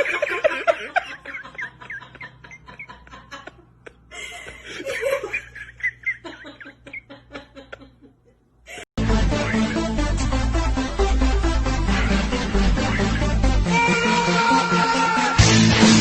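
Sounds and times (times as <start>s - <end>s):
person snickering: 0.0s - 9.9s, 11.9s - 13.4s.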